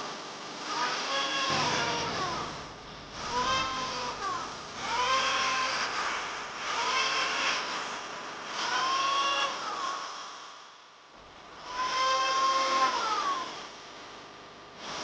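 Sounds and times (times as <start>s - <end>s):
electric hand planer cutting: 1.5s - 7.4s.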